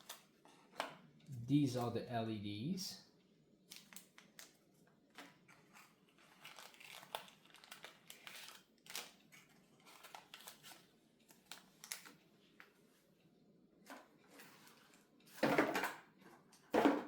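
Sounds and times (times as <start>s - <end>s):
plastic packaging crinkling: 3.6s - 12.2s.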